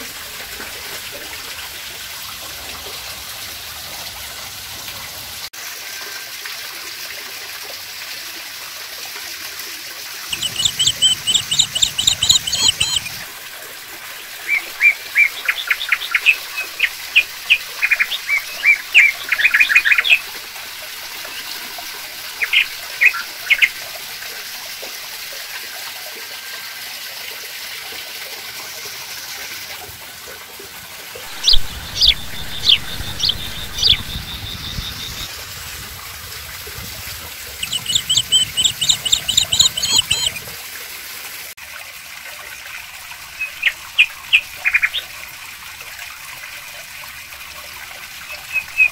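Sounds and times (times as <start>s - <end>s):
water trickling into pond: 0.0s - 48.9s
rapid bird chirps: 10.3s - 13.2s, 14.4s - 20.3s, 22.3s - 23.7s, 31.3s - 35.3s, 37.6s - 40.5s, 43.4s - 45.1s.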